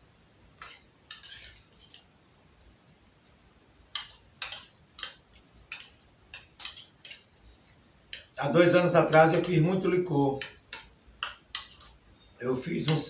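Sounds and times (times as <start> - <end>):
wood fire crackling: 3.7 - 13.0.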